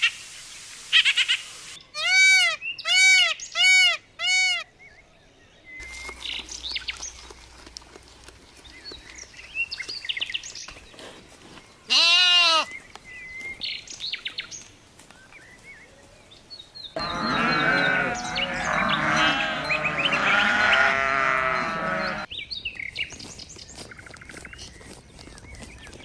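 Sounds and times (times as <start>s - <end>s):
flock bleating: 11.9s - 12.7s, 17.0s - 22.3s.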